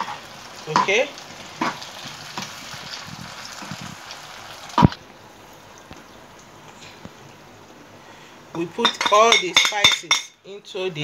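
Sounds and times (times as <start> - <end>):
vegetables sizzling in frying pan: 0.0 - 5.8.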